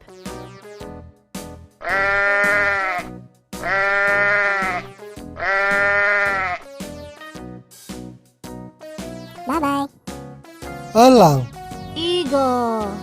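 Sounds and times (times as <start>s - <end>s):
light children's music: 0.0s - 13.0s
sheep bleating: 1.8s - 6.7s.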